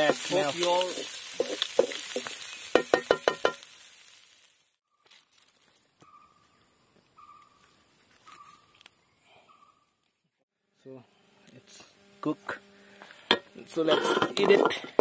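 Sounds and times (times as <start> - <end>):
utensil knocking on wok: 0.0 - 3.6
food sizzling in a wok: 0.0 - 4.8.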